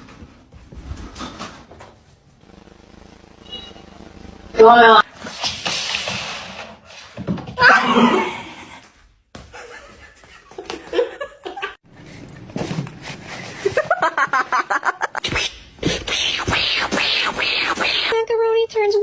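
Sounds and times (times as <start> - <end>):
person laughing: 9.5 - 11.8.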